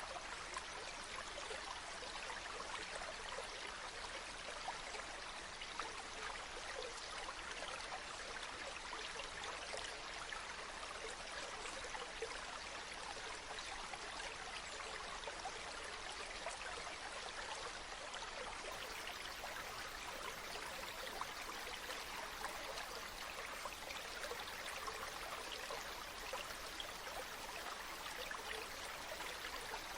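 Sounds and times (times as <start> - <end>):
water flowing and splashing: 18.7 - 29.9.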